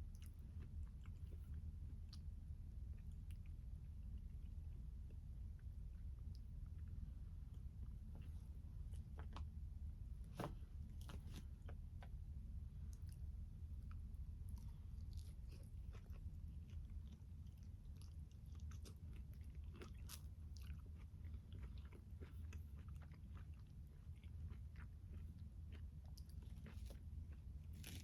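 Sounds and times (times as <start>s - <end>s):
low steady hum: 0.0s - 28.0s
wet chewing crunches: 13.8s - 28.0s.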